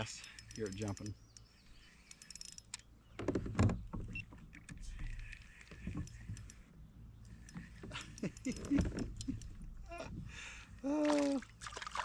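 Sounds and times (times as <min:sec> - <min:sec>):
fish splashing at water surface: 0:11.0 - 0:12.0.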